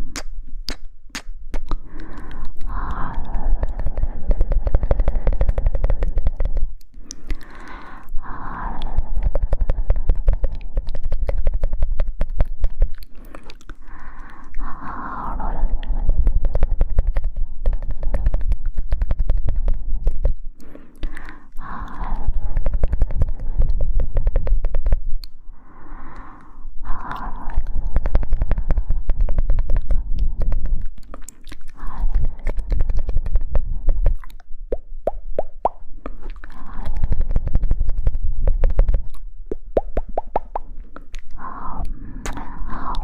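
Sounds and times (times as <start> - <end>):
wet tongue clicks and lip smacks: 0.0 - 8.1, 8.8 - 14.7, 16.7 - 25.4, 26.1 - 43.0
breathy puffs: 13.1 - 34.4, 40.0 - 43.0.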